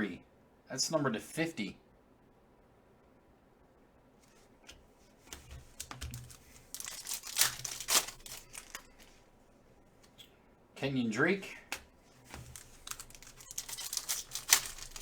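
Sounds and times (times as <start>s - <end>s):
trading cards being shuffled: 4.3s - 9.2s, 11.7s - 15.0s.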